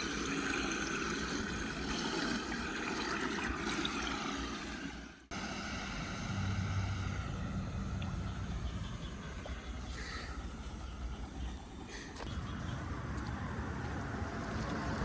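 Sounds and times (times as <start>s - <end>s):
floodwater rushing: 0.0s - 8.2s
low hum: 0.0s - 14.2s.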